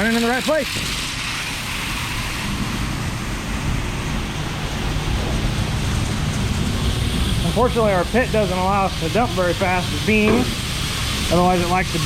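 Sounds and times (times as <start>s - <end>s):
low mechanical hum: 0.0s - 12.0s
grain pouring hiss: 6.8s - 12.0s.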